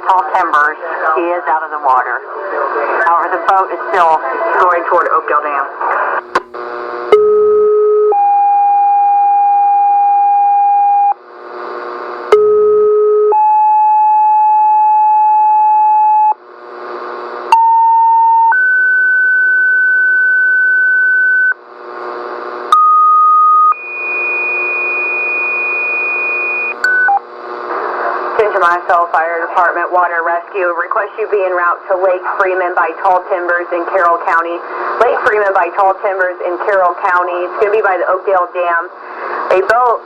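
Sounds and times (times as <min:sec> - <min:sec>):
radio hiss: 0:00.0 - 0:06.8, 0:27.4 - 0:40.0.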